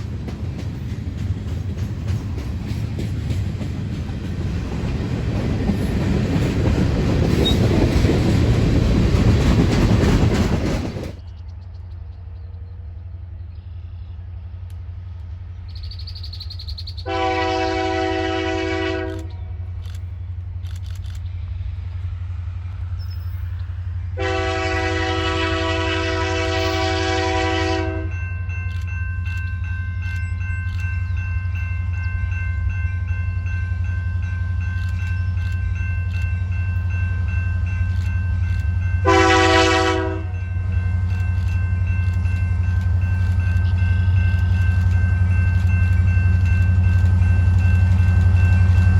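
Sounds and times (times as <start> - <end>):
train rumble: 0.0 - 48.9
locomotive horn blasts: 17.1 - 19.4, 24.2 - 28.2, 39.0 - 40.5.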